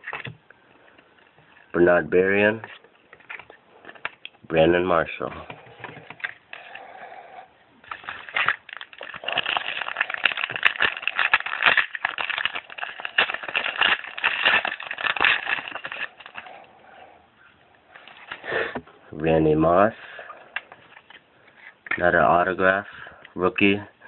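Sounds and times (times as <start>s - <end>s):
card packaging crinkling: 7.8s - 16.6s.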